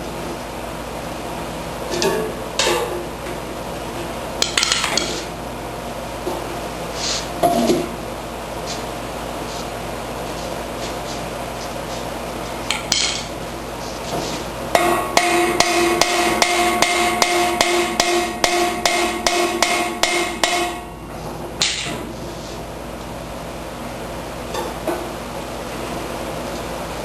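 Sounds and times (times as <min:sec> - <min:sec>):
hammer striking ringing metal: 0:14.7 - 0:21.0.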